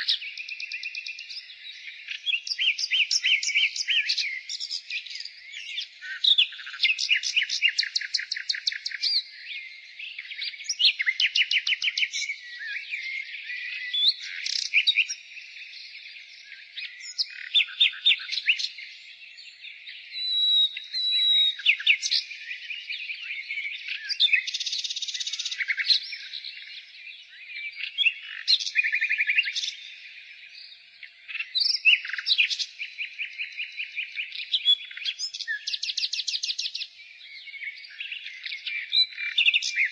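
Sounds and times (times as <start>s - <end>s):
nightingale singing: 0.0s - 39.9s.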